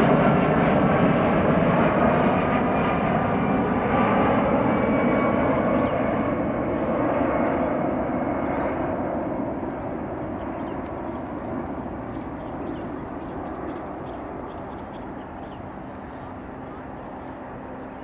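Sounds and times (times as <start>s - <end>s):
jet engines rushing overhead: 0.0s - 18.0s.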